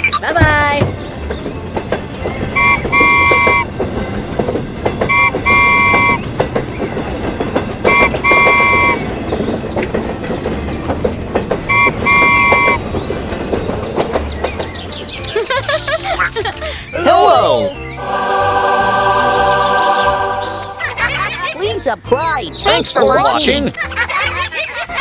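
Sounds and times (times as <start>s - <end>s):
wheels clacking on rails: 0.0s - 16.9s, 17.8s - 25.0s
train horn tooting: 2.6s - 3.8s, 5.0s - 6.3s, 7.8s - 9.1s, 11.7s - 12.8s.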